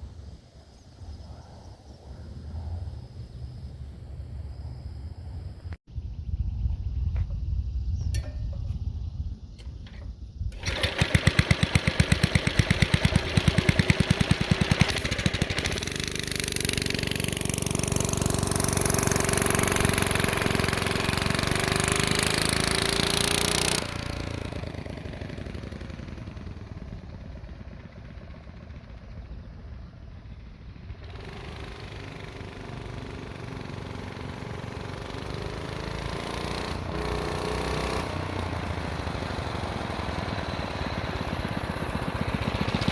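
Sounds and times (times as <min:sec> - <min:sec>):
mini bike engine revving: 0:09.6 - 0:29.4, 0:30.8 - 0:42.9.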